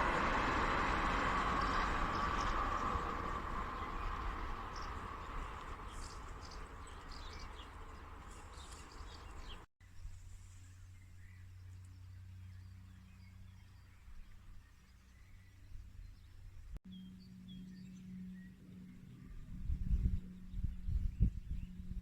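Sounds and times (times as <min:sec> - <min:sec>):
broad outdoor noise: 0:00.0 - 0:22.0
small birds chirping: 0:00.6 - 0:21.8
steady low hum: 0:16.5 - 0:22.0.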